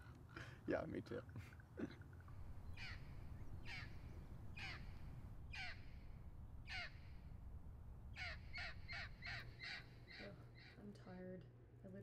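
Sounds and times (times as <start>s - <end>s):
bird harsh falling calls: 2.2s - 7.4s, 8.1s - 10.9s.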